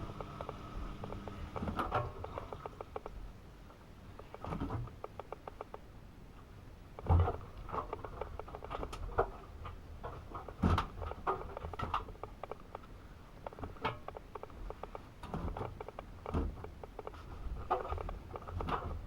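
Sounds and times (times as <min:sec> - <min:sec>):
laundry tumbling with clicks and knocks: 0:07.0 - 0:19.0.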